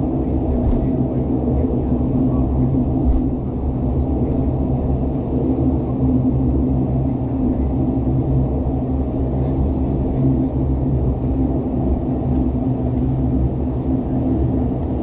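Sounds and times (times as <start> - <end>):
airplane engines droning in cabin: 0.0 - 15.0.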